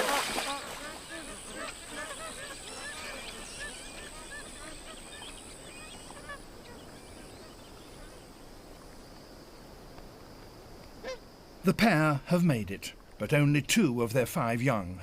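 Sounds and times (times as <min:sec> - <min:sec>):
geese honking: 0:00.0 - 0:07.6.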